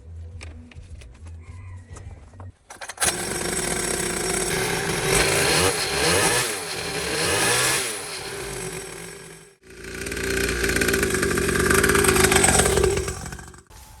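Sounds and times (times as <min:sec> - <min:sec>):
starter clicks: 0:02.7 - 0:05.9
small motorcycle engine running: 0:02.7 - 0:14.0.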